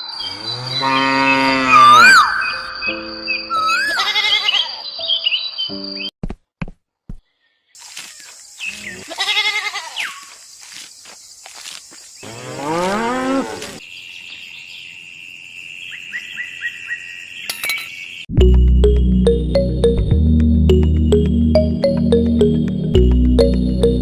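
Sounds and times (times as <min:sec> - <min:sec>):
cow mooing: 0:00.2 - 0:02.2, 0:12.2 - 0:13.8
music: 0:02.5 - 0:04.1, 0:05.0 - 0:06.1, 0:18.3 - 0:24.0.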